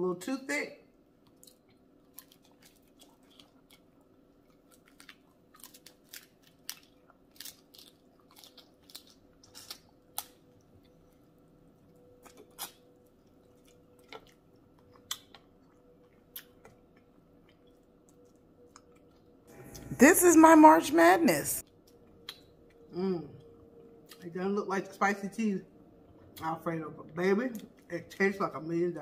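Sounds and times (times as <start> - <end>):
mouth chewing clicks and smacks: 1.2 - 11.2, 12.2 - 19.3, 21.7 - 24.3.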